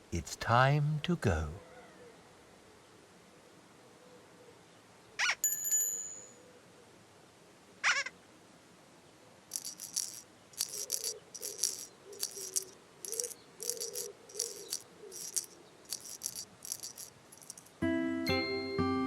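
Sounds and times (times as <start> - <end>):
shaker rattling: 9.5 - 17.8.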